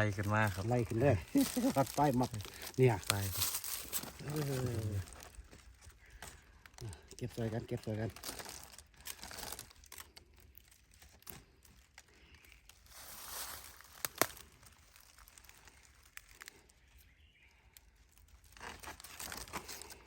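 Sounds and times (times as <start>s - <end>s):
dry foliage rustling: 0.0s - 20.0s.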